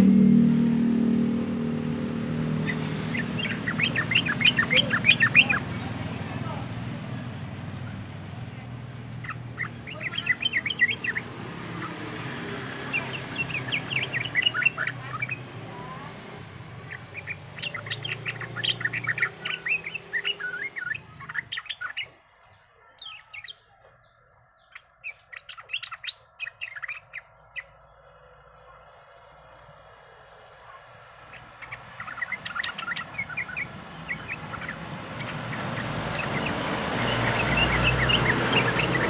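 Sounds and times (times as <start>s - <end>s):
low hum: 0.0s - 11.7s
bird chattering song: 0.0s - 39.0s.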